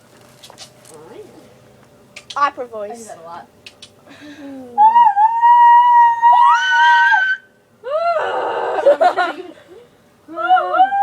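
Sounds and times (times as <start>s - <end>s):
shrieking cry: 4.8s - 9.1s, 10.3s - 11.0s.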